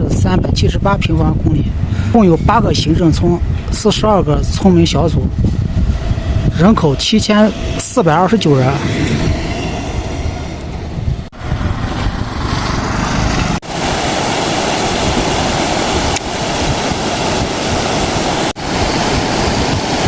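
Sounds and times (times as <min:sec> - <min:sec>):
wind buffeting microphone: 0:00.0 - 0:20.0
flowing river water: 0:13.6 - 0:20.0.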